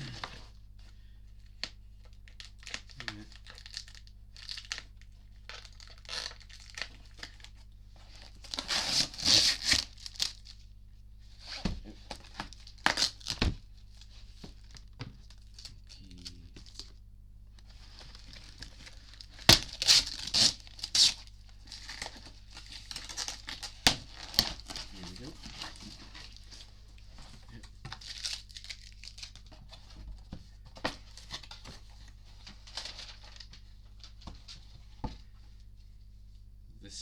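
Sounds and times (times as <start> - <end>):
packaging tearing and crinkling: 2.3 - 10.5, 11.4 - 14.0, 17.7 - 26.7, 27.3 - 29.6, 30.9 - 34.1.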